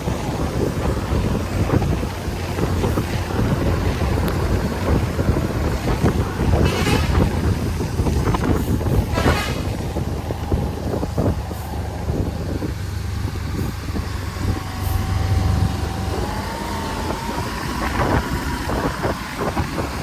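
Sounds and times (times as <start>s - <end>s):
diesel engine rumbling: 0.0s - 20.0s
thin rising whine: 9.8s - 20.0s.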